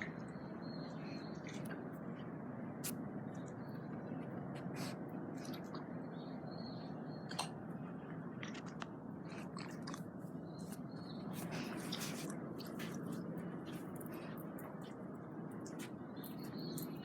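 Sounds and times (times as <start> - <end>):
low background noise: 0.0 - 17.0
dog chewing with crunching: 8.4 - 17.0.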